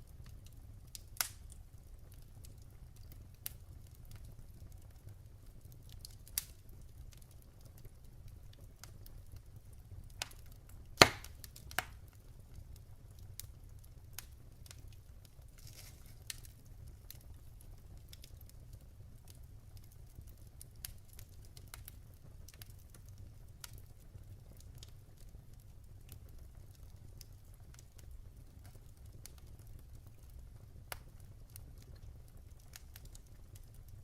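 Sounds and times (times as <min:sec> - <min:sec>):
low rumble of flames: 0:00.0 - 0:34.0
logs snapping and popping: 0:11.0 - 0:12.0, 0:15.6 - 0:16.5.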